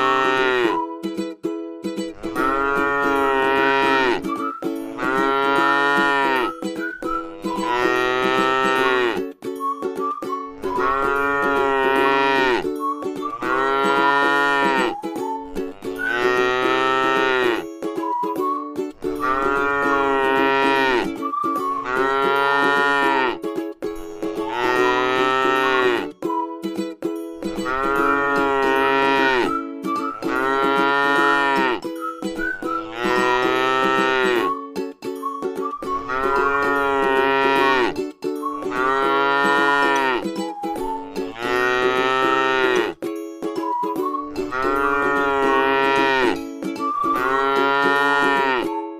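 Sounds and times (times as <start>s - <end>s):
cow mooing: 0.0s - 0.8s, 2.2s - 4.2s, 5.0s - 6.5s, 7.6s - 9.2s, 10.8s - 12.6s, 13.4s - 14.9s, 16.0s - 17.6s, 19.2s - 21.1s, 21.8s - 23.4s, 24.4s - 26.1s, 27.6s - 29.5s, 30.3s - 31.8s, 32.9s - 34.5s, 36.0s - 38.0s, 38.7s - 40.2s, 41.3s - 43.0s, 44.5s - 46.4s, 47.2s - 48.7s.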